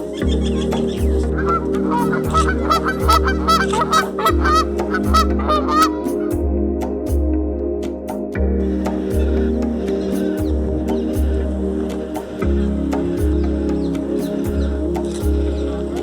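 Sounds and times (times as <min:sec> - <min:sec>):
background music with low beat: 0:00.0 - 0:16.0
geese honking: 0:00.5 - 0:06.4.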